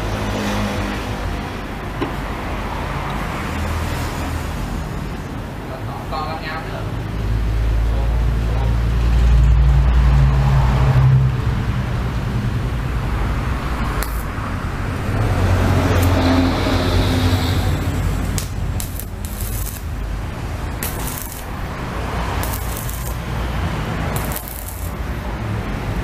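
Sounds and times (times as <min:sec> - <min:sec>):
welder humming and hissing: 0:13.8 - 0:15.1, 0:15.8 - 0:25.3
sharp clicks: 0:14.0 - 0:14.3, 0:20.8 - 0:21.5.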